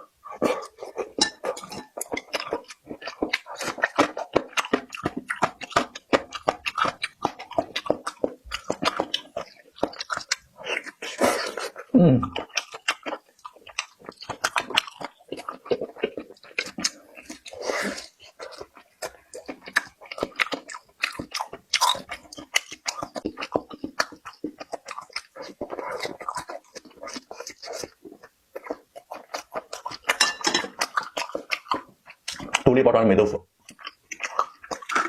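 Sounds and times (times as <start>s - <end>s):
chewing and crunching food: 0.0s - 35.0s
low throat sound: 11.2s - 12.5s.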